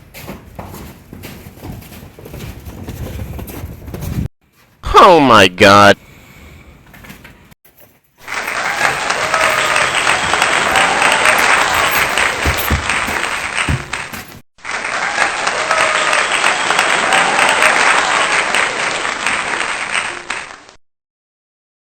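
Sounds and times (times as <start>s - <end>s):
crowd applause: 8.2s - 20.8s.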